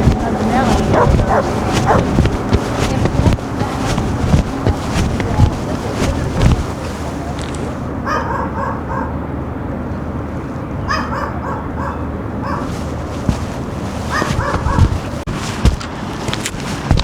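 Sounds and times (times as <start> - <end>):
low city background noise: 0.0 - 17.0
small dog yapping: 0.9 - 2.2.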